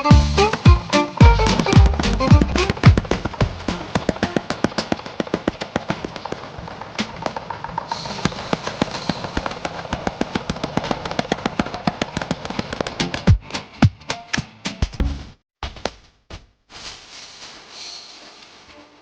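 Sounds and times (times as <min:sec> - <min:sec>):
steady hiss: 0:16.7 - 0:19.0.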